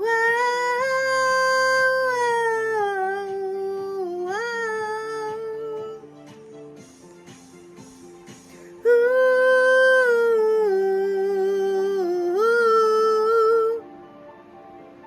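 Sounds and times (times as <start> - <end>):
woman singing long wordless note: 0.0 - 6.2, 8.7 - 14.0.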